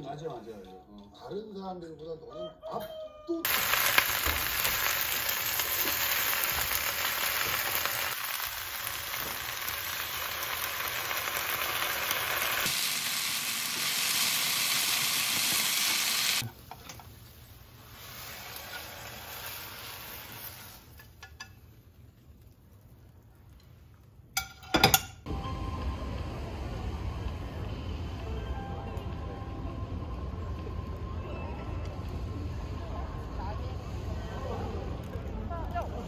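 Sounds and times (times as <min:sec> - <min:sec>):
vegetables sizzling in frying pan: 0:03.5 - 0:21.5.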